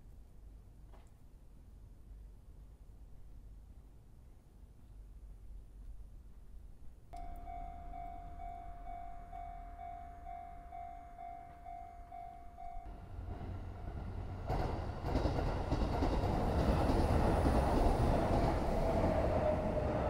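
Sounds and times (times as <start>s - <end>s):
repeating warning tone: 7.2s - 13.2s
train wheels rumbling on rails: 7.2s - 20.0s.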